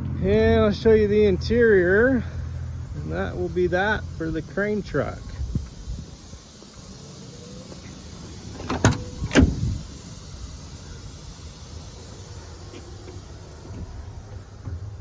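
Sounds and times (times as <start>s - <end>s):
truck door knocks: 8.6s - 9.8s, 13.6s - 15.0s.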